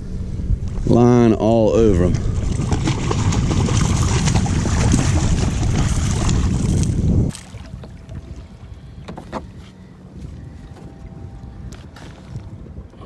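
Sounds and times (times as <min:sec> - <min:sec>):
wind buffeting microphone: 0:00.0 - 0:13.0
light knocks: 0:07.3 - 0:11.0.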